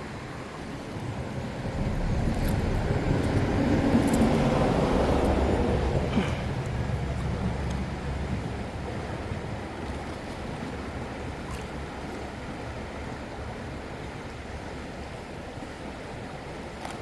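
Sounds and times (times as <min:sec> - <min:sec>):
wind rumble on microphone: 0:00.0 - 0:13.9
river water rushing: 0:00.0 - 0:17.0.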